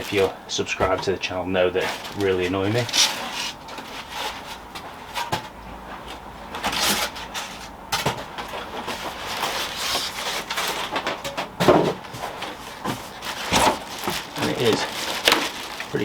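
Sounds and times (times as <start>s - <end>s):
packaging knocks: 1.8s - 3.2s, 9.3s - 16.0s
polystyrene scraping and rubbing: 1.8s - 5.3s, 8.6s - 11.0s, 12.1s - 16.0s.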